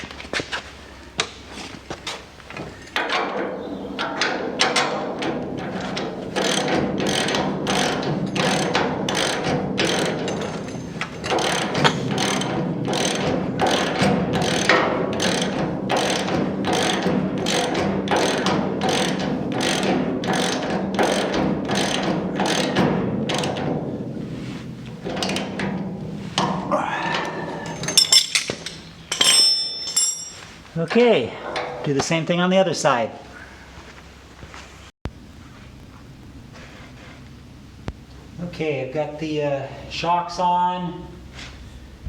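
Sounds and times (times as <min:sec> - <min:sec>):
ratchet wrench clicking: 0:11.3 - 0:22.7.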